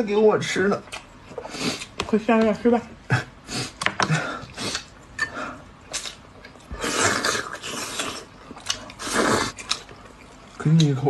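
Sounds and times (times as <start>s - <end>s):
noodles slurped: 5.9s - 10.6s
wet chewing clicks: 5.9s - 11.0s.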